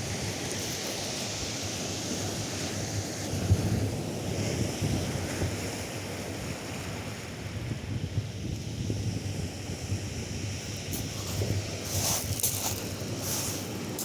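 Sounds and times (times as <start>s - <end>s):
wind buffeting microphone: 3.2s - 14.0s.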